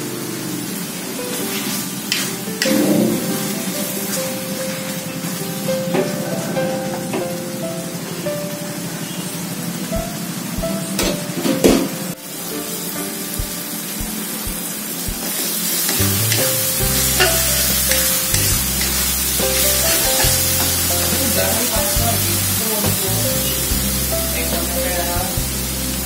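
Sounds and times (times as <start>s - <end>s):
paste sizzling in hot oil: 12.3s - 26.0s
metal spatula stirring in wok: 15.9s - 20.9s.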